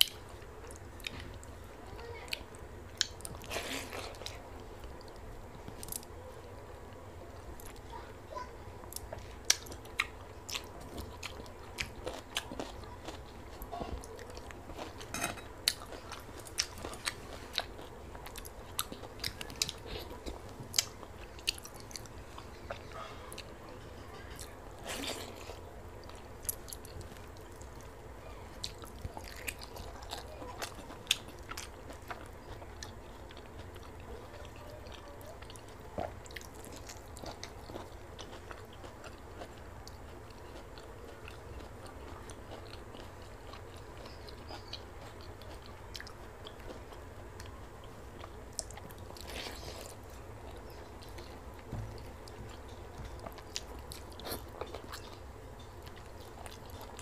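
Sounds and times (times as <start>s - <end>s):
person chewing: 2.9s - 6.2s, 8.9s - 57.0s.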